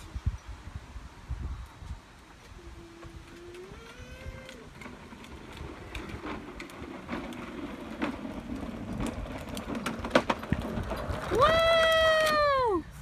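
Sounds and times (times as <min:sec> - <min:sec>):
toy motorcycle wheels rumbling: 0:02.2 - 0:12.8
child calling out: 0:11.4 - 0:12.9.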